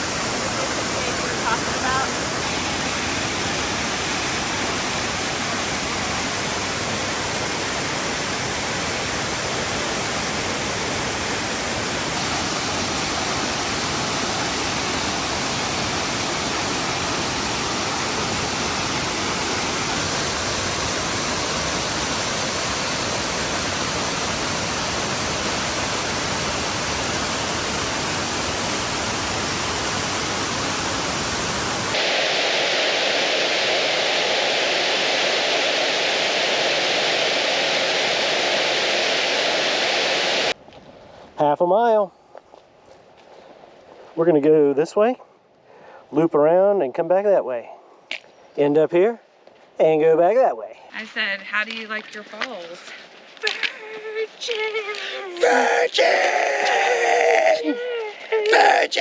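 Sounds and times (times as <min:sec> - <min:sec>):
waterfall rushing: 0:00.0 - 0:40.6.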